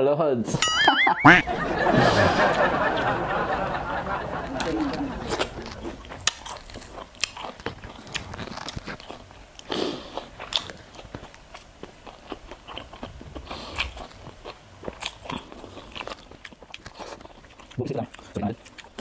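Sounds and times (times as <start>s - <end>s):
chewing crunchy food: 4.6s - 19.0s.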